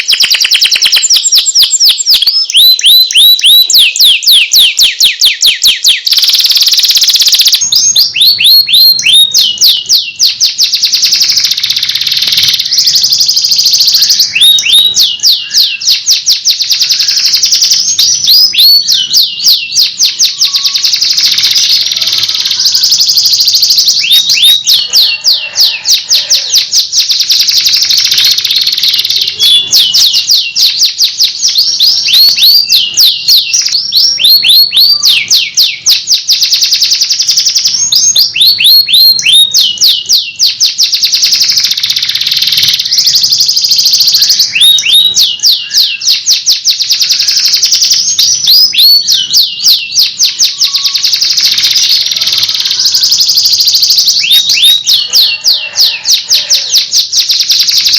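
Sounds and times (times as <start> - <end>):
canary singing: 0.0 - 57.9.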